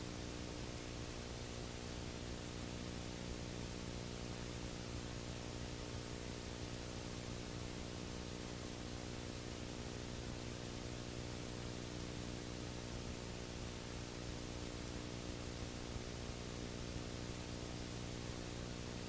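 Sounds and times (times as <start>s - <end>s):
electrical hum: 0.0s - 19.0s
steady hiss: 0.0s - 19.0s.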